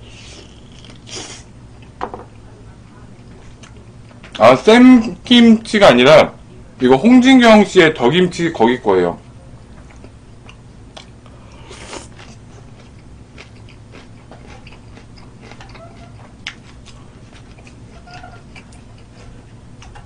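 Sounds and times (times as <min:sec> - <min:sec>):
crunchy wet chewing: 0:00.2 - 0:01.9, 0:03.2 - 0:04.4, 0:09.8 - 0:20.0.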